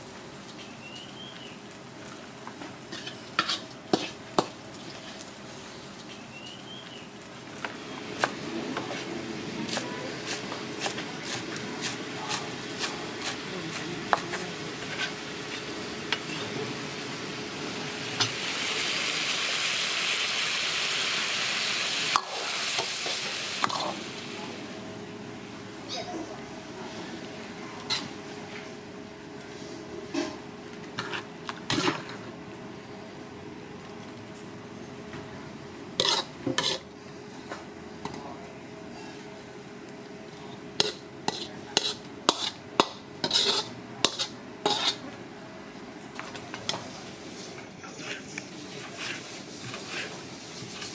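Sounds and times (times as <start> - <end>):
food sizzling in a wok: 0.0 - 24.8, 35.9 - 37.4, 40.7 - 45.2, 46.6 - 50.9
metal spatula scraping a pan: 2.9 - 5.0, 36.0 - 36.8, 40.8 - 45.0, 48.0 - 50.9.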